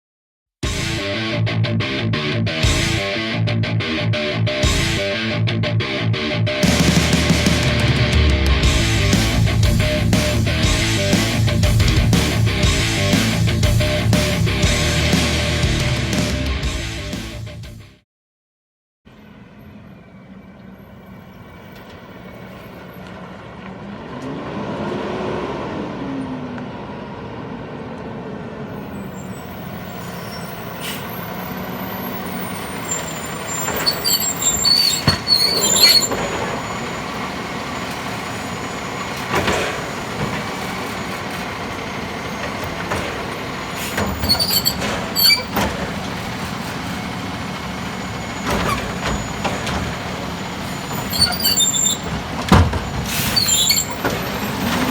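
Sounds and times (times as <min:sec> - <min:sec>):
truck diesel engine running: 0:06.6 - 0:17.5, 0:19.2 - 0:24.6, 0:26.0 - 0:54.9
air brakes squealing and hissing: 0:19.6 - 0:23.3, 0:28.7 - 0:54.9.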